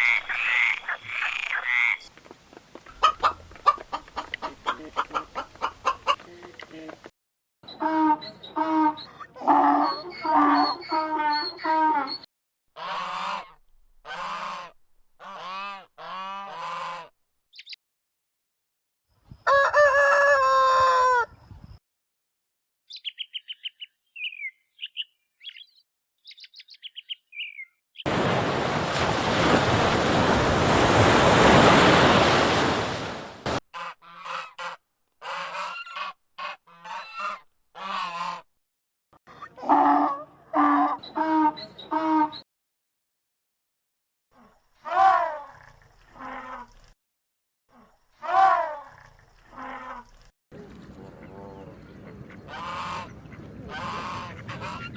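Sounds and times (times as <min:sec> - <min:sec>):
high bird chirps: 0:00.0 - 0:02.1, 0:22.9 - 0:27.8.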